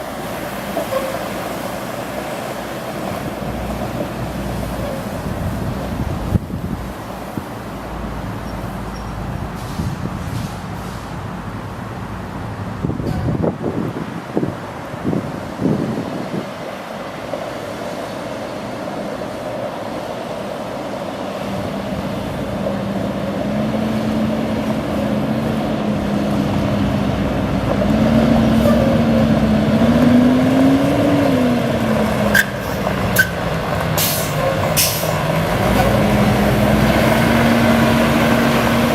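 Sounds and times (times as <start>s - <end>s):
diesel truck engine running: 21.2s - 38.9s.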